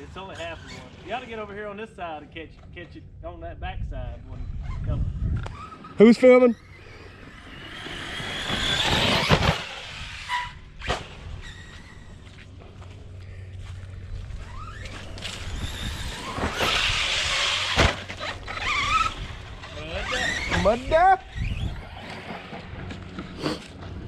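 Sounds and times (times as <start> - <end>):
electric motors whining: 4.5 - 24.0
trucks thumping down from jumps: 7.7 - 9.9, 15.1 - 19.7.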